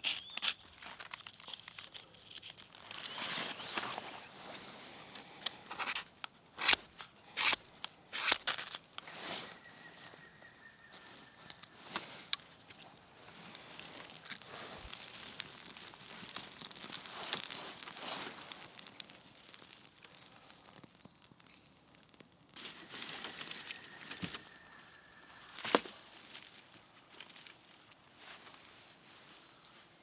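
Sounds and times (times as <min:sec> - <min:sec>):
rustling handling noises: 0:00.0 - 0:21.4, 0:22.5 - 0:30.0.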